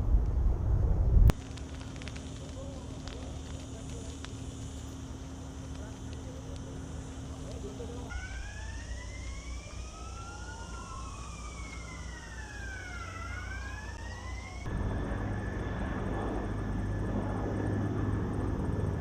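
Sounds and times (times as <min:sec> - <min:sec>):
low engine drone: 0:00.0 - 0:19.0
emergency sirens wailing: 0:07.6 - 0:19.0.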